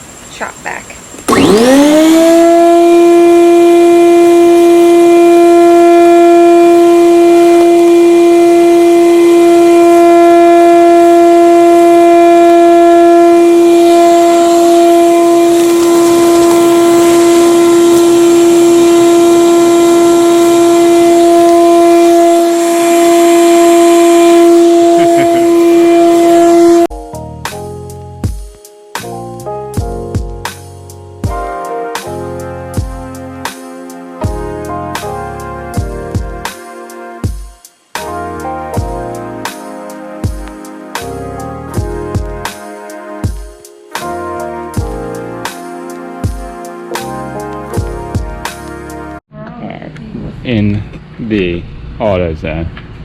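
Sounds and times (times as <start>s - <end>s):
vacuum cleaner motor whining: 1.2s - 26.9s.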